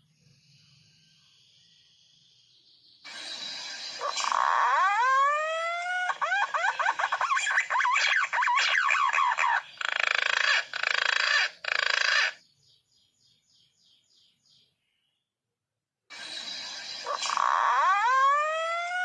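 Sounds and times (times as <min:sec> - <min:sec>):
harsh rasping calls: 0:03.1 - 0:12.4, 0:16.1 - 0:19.0.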